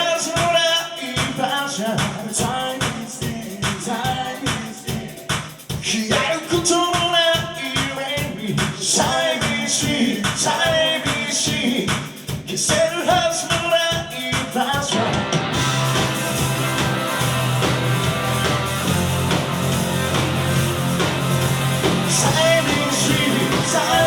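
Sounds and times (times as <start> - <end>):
drums: 0.0 - 24.0
electric guitar: 14.9 - 24.0
bass: 15.0 - 24.0
person singing: 22.0 - 24.0.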